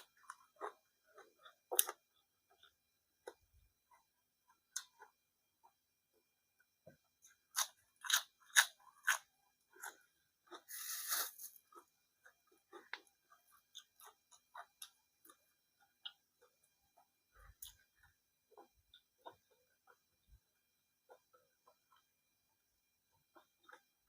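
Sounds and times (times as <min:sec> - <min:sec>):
food crunching in mouth: 0:07.3 - 0:15.4.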